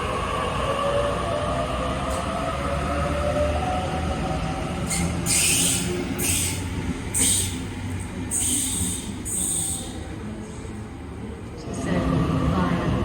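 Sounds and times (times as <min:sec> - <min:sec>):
electric train rumble: 0:00.0 - 0:13.0
high hissing screeches: 0:04.9 - 0:06.6, 0:08.3 - 0:10.0.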